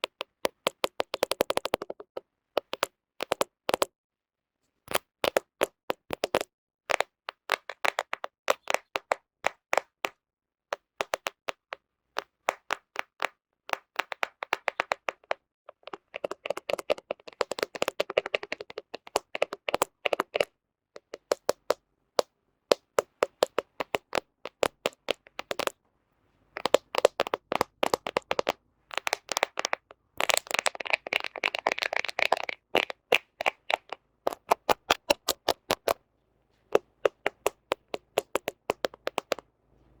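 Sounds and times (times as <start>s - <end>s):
fingernails tapping on a camera: 36.8s - 39.4s.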